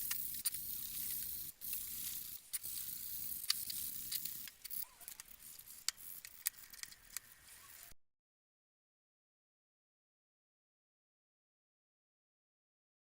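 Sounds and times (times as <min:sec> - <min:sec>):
steady hiss: 0:00.0 - 0:04.6.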